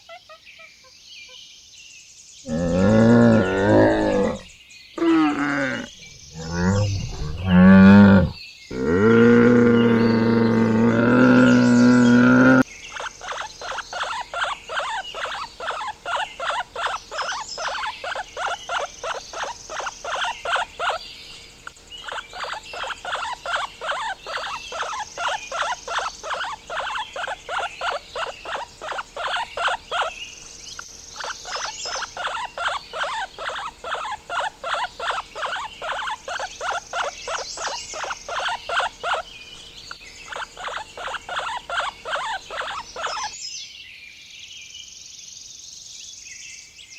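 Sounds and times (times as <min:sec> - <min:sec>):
animal calling in short pulses: 0:02.5 - 0:12.6
faint high chirping: 0:02.5 - 0:43.5.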